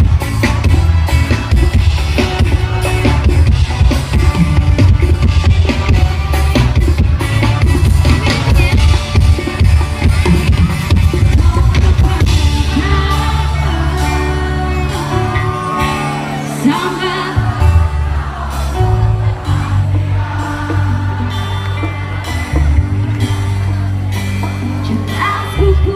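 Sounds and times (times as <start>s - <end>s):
live band music: 0.0s - 25.9s
person singing: 8.8s - 23.0s.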